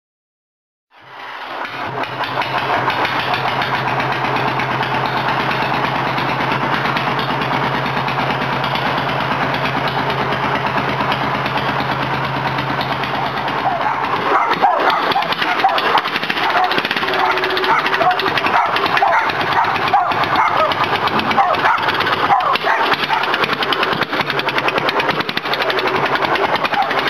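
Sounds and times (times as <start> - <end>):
rough irregular engine sounds: 0.9 - 27.0
tractor engine running: 1.0 - 27.0.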